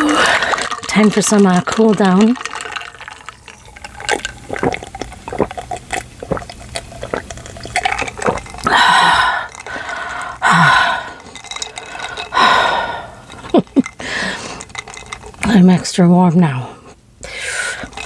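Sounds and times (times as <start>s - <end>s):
loud sips or gulps: 0.0s - 1.0s, 2.2s - 14.8s.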